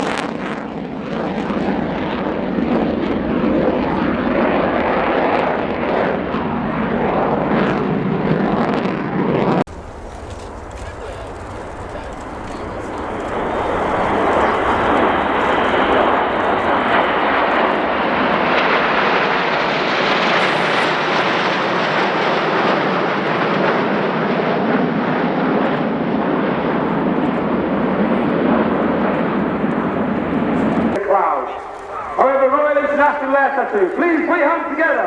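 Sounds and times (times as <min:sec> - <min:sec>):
aircraft engine flying past: 0:09.7 - 0:34.8.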